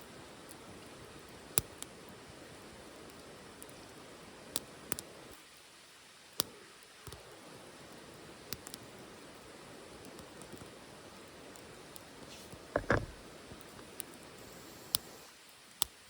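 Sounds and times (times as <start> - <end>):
wood fire hissing in a stove: 0.0 - 16.0
fire crackling pops: 6.4 - 16.0.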